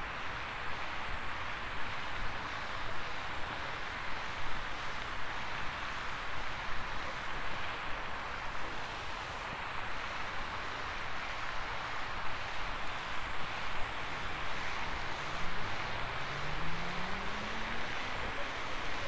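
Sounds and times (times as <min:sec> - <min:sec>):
steady rushing noise: 0:00.0 - 0:19.0
low hum rising in pitch: 0:15.2 - 0:18.4.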